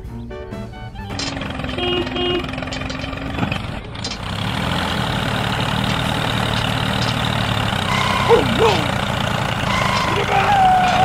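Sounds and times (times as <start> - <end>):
music: 0.0 - 2.3
small tractor engine idling: 1.1 - 11.0.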